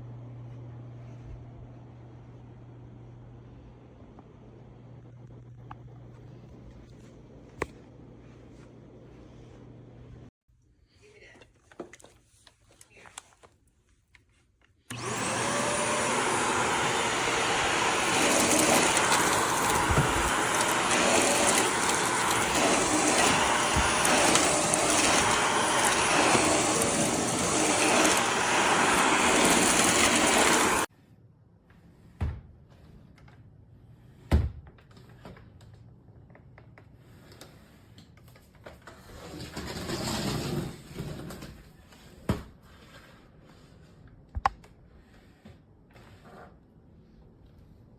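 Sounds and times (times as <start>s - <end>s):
vacuum cleaner roaring: 14.9s - 30.9s.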